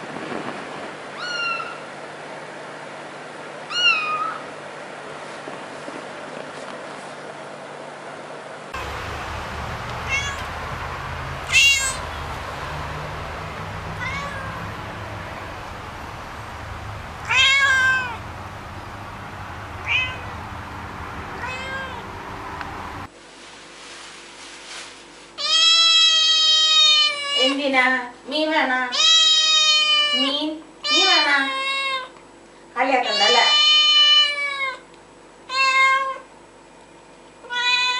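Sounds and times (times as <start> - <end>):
cat meowing: 1.2 - 1.8, 3.7 - 4.4, 9.9 - 10.6, 11.5 - 15.2, 17.2 - 18.2, 19.8 - 20.4, 21.4 - 22.2, 25.4 - 27.6, 28.9 - 32.1, 33.1 - 34.8, 35.5 - 36.2, 37.4 - 37.9
steady low hum: 4.4 - 24.0.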